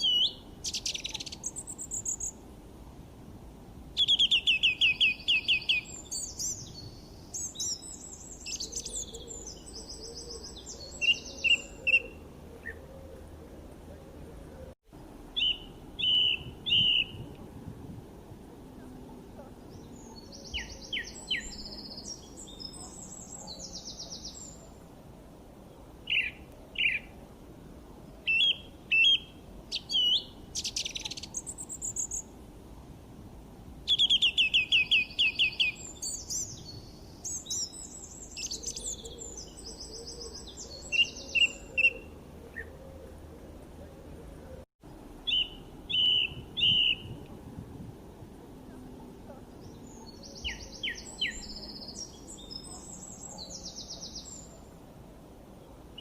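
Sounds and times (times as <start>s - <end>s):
songbirds chirping and singing: 0.0s - 2.4s, 4.0s - 14.7s, 18.7s - 24.8s, 33.9s - 44.6s, 45.3s - 47.2s, 48.7s - 54.7s.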